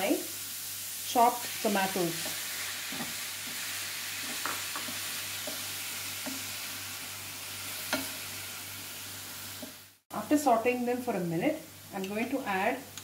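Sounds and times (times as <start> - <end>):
onions and tomatoes sizzling: 0.0 - 13.0
spatula tapping pan: 4.3 - 6.5, 7.9 - 8.2.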